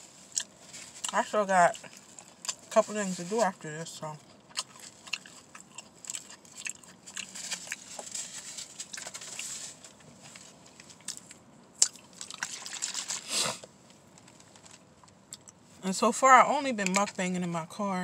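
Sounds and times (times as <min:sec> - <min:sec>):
chewing and biting: 0:00.3 - 0:02.7, 0:04.2 - 0:08.1, 0:10.8 - 0:13.1
paper wrapper rustling: 0:07.2 - 0:11.1, 0:12.1 - 0:13.3.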